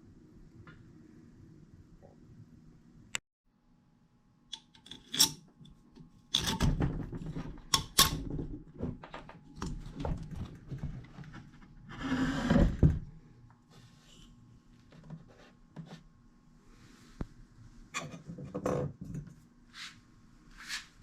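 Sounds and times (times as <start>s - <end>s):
tools and parts clattering: 6.3s - 10.8s.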